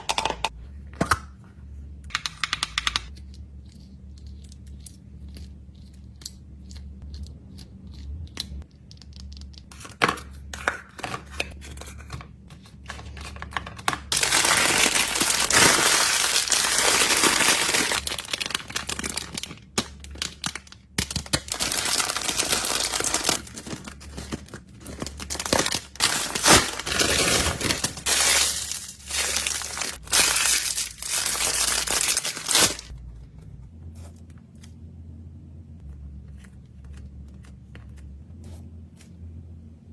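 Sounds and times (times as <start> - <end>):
packaging crinkling and tearing: 12.8 - 32.9.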